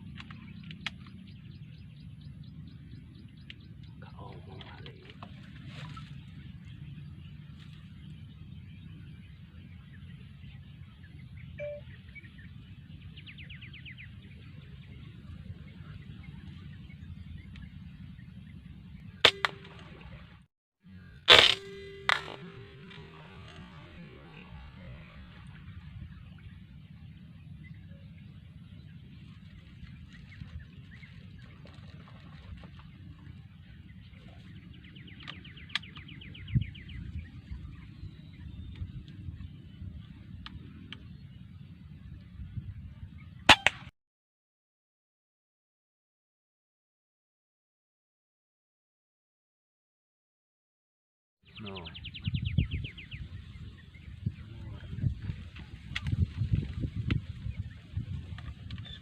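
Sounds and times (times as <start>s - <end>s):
small birds chirping: 0.0s - 20.2s, 21.8s - 43.4s, 51.5s - 59.0s
low background rumble: 0.0s - 43.9s
bird trilling: 11.6s - 12.5s
sharp clicks: 19.2s - 19.9s.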